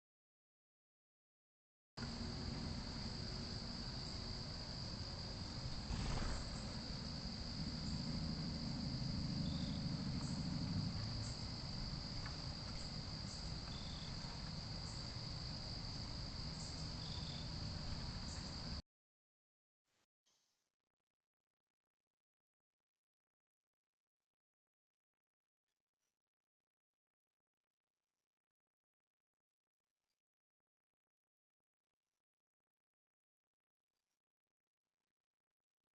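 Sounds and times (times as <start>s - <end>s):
insect high trill: 2.2s - 18.8s
short lower insect chirps: 3.5s - 8.0s.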